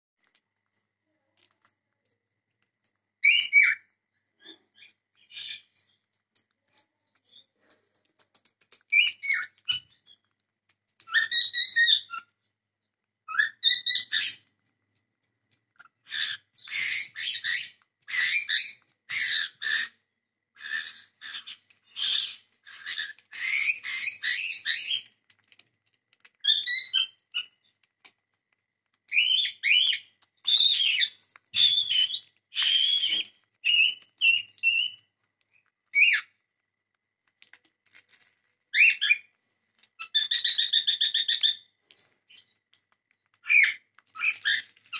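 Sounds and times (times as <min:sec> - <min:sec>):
cockatiels chirping and whistling: 0:03.2 - 0:03.8, 0:04.4 - 0:06.0, 0:08.9 - 0:10.2, 0:11.0 - 0:12.3, 0:13.3 - 0:14.5, 0:15.8 - 0:19.9, 0:20.6 - 0:25.1, 0:26.4 - 0:27.6, 0:29.1 - 0:35.1, 0:35.9 - 0:36.3, 0:38.7 - 0:39.3, 0:40.0 - 0:42.6, 0:43.4 - 0:44.8.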